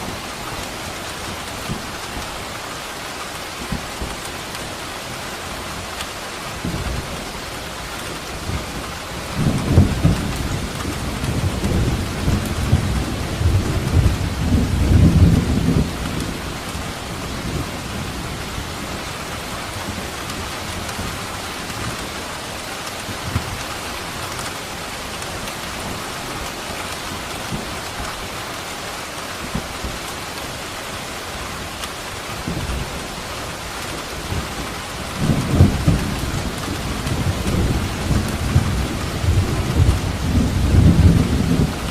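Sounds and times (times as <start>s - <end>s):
heavy rain hissing: 0.0s - 41.9s
thunder rumbling: 8.4s - 18.9s, 32.3s - 41.9s.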